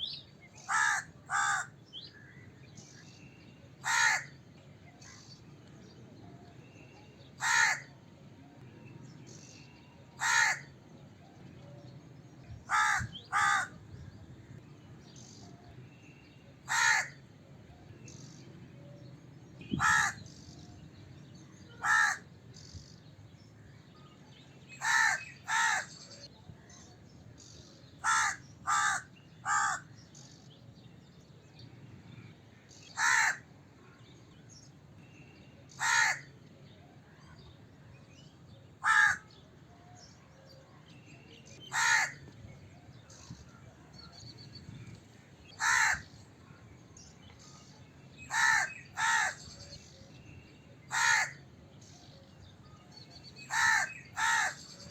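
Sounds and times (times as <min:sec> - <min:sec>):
crow cawing: 0:00.6 - 0:01.8, 0:03.8 - 0:04.4, 0:07.4 - 0:07.9, 0:10.2 - 0:10.7, 0:12.7 - 0:13.8, 0:16.7 - 0:17.2, 0:19.8 - 0:20.3, 0:21.8 - 0:22.2, 0:24.8 - 0:25.9, 0:28.0 - 0:29.9, 0:33.0 - 0:33.4, 0:35.8 - 0:36.3, 0:38.8 - 0:39.3, 0:41.7 - 0:42.2, 0:45.6 - 0:46.1, 0:48.3 - 0:49.4, 0:50.9 - 0:51.4, 0:53.5 - 0:54.6.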